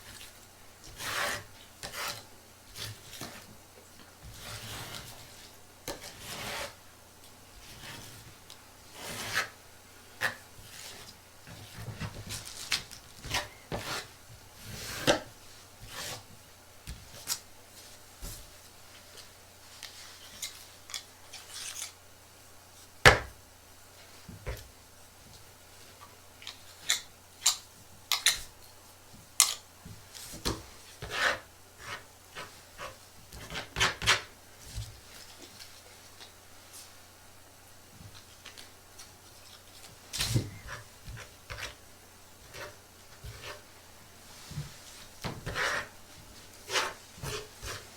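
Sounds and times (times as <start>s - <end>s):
scratchy rubbing and scraping: 4.3s - 5.3s, 6.0s - 6.8s, 8.9s - 9.6s, 42.4s - 43.7s, 44.8s - 46.0s, 46.6s - 47.9s.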